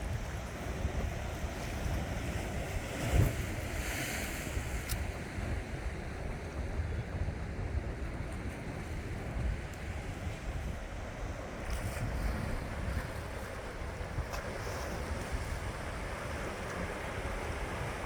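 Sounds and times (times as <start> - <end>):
sea waves washing on shore: 9.0 - 18.0.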